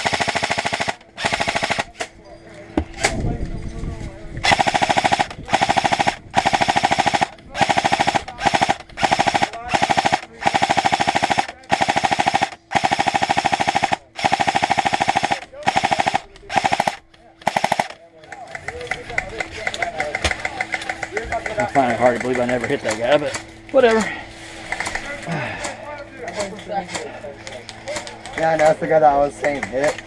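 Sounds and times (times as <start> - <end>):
airsoft rifle full auto bursts: 0.0 - 2.1, 4.4 - 18.0.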